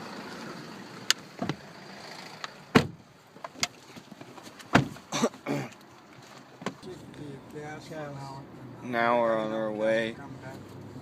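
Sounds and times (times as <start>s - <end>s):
heavy thump: 2.7s - 3.0s
clicks and knocks in a car: 2.7s - 5.1s.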